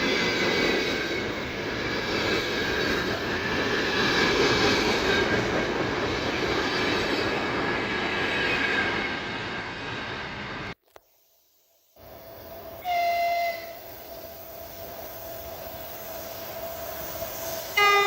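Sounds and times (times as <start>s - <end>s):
train wagons rumbling on rails: 0.0s - 10.4s.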